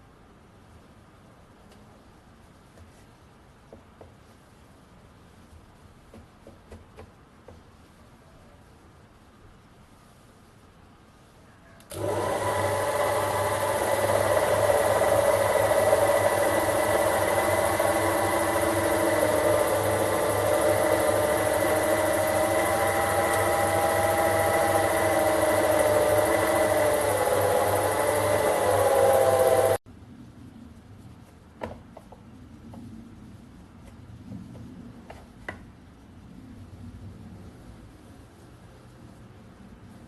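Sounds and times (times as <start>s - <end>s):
lathe motor whining: 11.9s - 29.8s.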